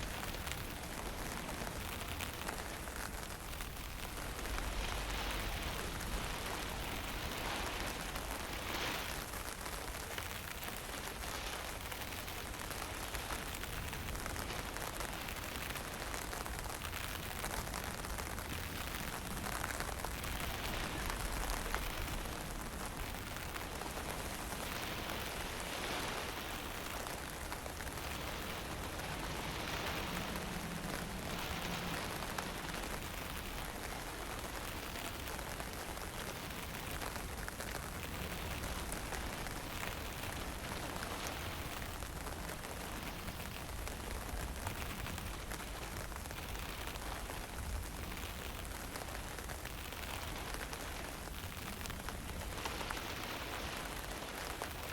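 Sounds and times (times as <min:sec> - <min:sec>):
low rumble of wind: 0:00.0 - 0:54.9.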